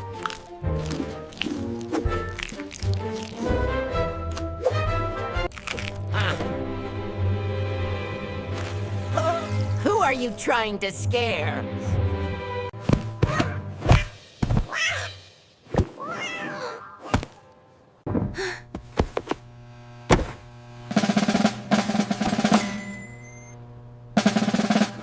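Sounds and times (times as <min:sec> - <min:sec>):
cat meows: 0:16.0 - 0:17.0.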